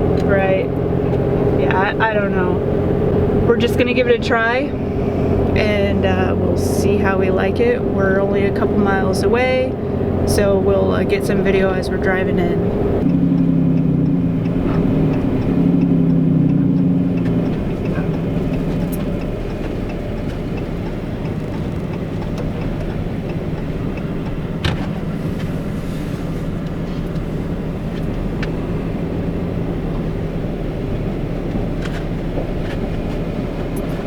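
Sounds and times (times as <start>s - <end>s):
road and engine noise in cab: 0.0s - 34.0s
sharp clicks: 12.6s - 25.0s.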